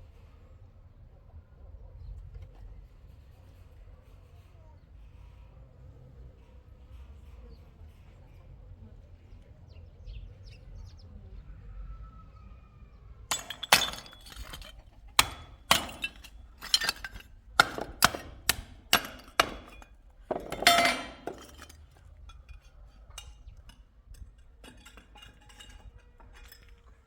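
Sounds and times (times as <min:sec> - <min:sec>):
crash: 0:13.3 - 0:21.8
sharp clinking knocks: 0:13.3 - 0:26.7.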